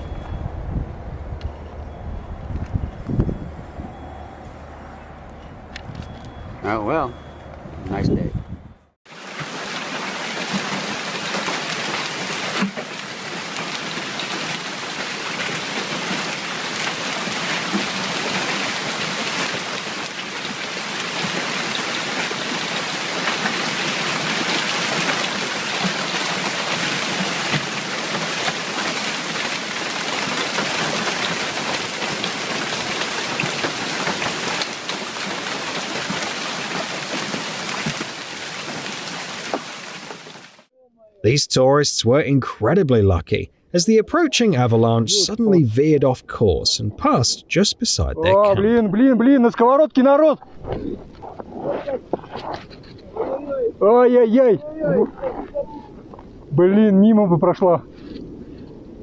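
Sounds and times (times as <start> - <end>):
heavy rain pouring: 9.1 - 40.7, 41.3 - 48.6.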